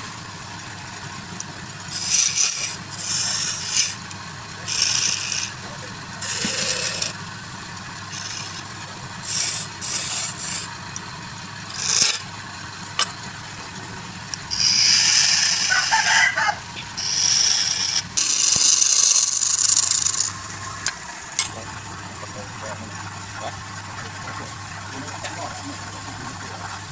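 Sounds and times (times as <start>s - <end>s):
low motor hum: 0.0s - 26.9s
lathe tool scraping wood: 1.8s - 12.3s, 12.9s - 20.9s.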